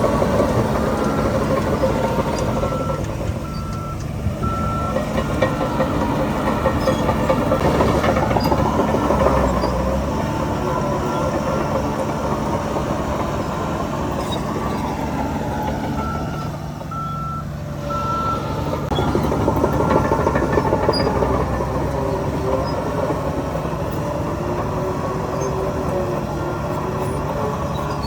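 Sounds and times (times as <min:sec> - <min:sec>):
heavy machinery engines running: 0:00.0 - 0:28.0
reversing alarm beeps: 0:00.3 - 0:06.0, 0:16.0 - 0:21.3.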